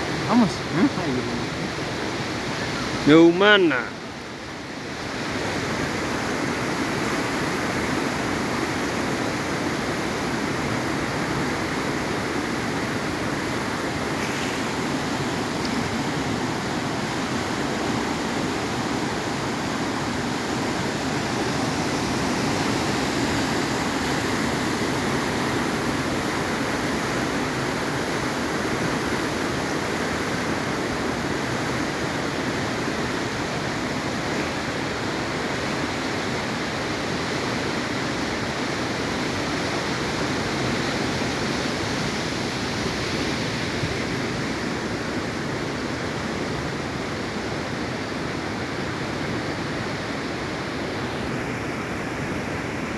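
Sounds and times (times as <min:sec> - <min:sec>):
floodwater rushing: 0:00.0 - 0:04.0, 0:11.1 - 0:27.9.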